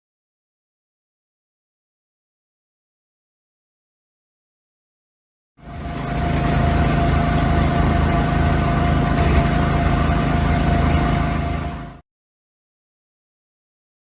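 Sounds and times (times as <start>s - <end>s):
machinery engine rumbling and whining: 5.6s - 12.0s.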